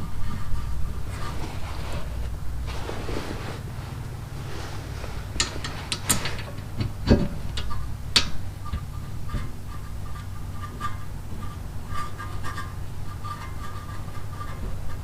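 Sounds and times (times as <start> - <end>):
tools and brake parts clinking: 5.3 - 11.0.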